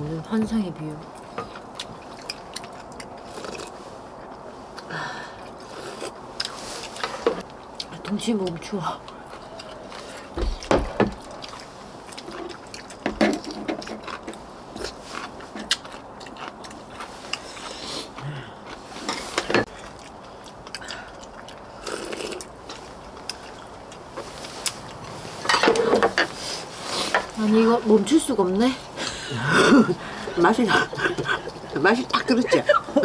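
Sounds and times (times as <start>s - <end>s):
chewing and biting: 1.1s - 7.9s, 9.0s - 27.3s.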